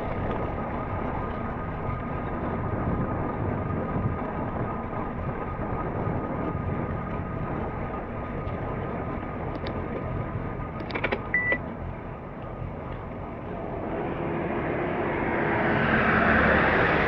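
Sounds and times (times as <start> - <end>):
wind noise: 0.0 - 11.4
road noise from moving vehicle: 0.0 - 17.0
sharp clicks: 10.8 - 11.6
brief beep: 11.3 - 11.6.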